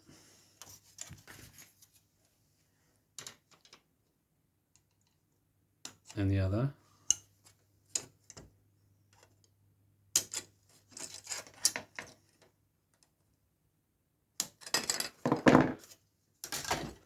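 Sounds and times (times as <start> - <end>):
plastic parts clicking and clattering: 3.2 - 3.9, 10.2 - 13.1, 14.4 - 17.0.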